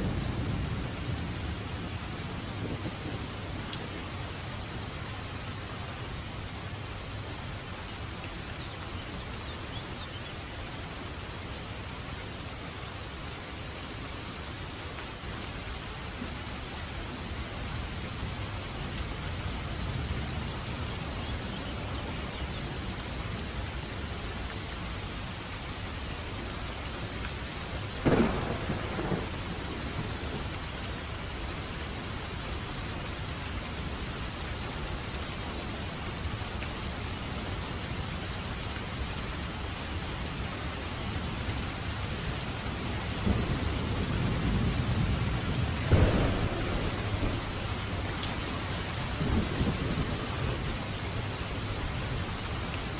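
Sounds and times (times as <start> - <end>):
low rolling thunder: 0.0 - 4.2, 28.0 - 30.7, 43.1 - 51.6
heavy rain on a roof: 0.0 - 52.9
sharp close thunderclap: 28.0 - 30.4, 45.8 - 47.6.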